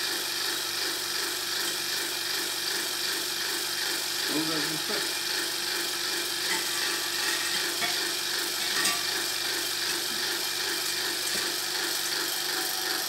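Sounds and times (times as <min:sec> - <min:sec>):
hairdryer running: 0:04.6 - 0:08.0, 0:09.8 - 0:13.0.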